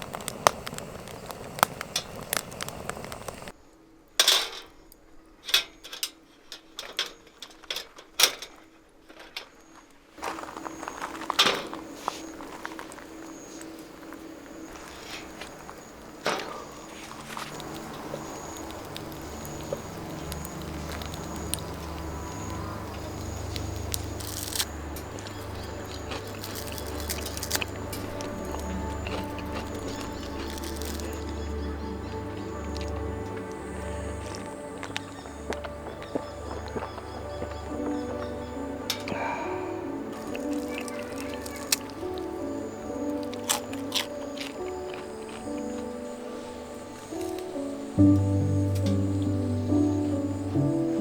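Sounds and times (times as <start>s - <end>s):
low hum: 0.0s - 3.5s, 13.8s - 40.4s, 48.0s - 51.0s
fire crackling: 0.0s - 3.6s, 10.2s - 51.0s.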